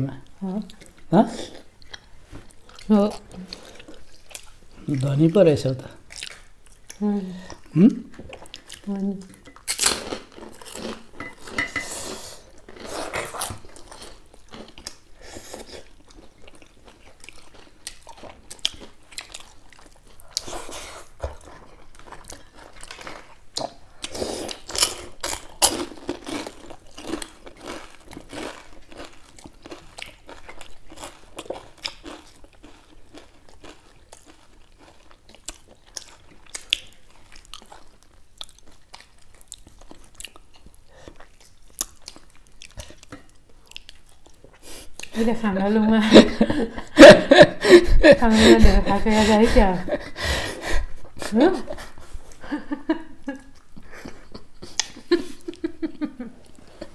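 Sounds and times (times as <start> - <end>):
chewing with crunchy bites: 0.2 - 45.2.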